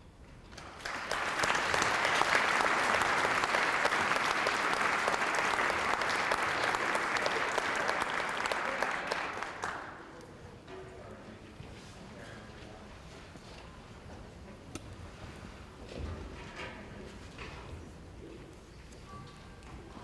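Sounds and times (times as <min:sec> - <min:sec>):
audience applauding: 0:00.6 - 0:10.1.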